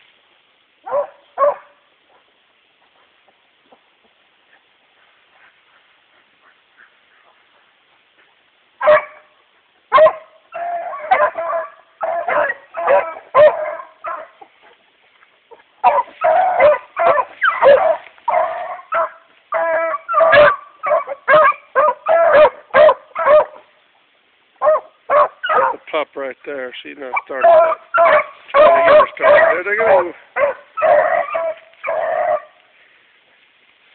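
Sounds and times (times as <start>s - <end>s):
hounds baying and barking: 0.8s - 3.8s, 8.1s - 14.9s, 15.5s - 23.7s, 24.6s - 25.9s, 27.1s - 32.7s.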